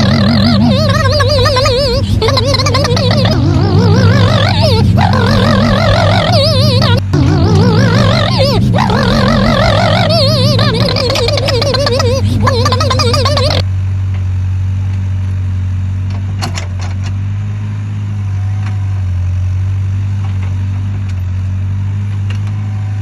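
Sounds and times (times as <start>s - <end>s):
wavering high-pitched sound: 0.0s - 13.6s
diesel engine idling: 0.0s - 14.0s.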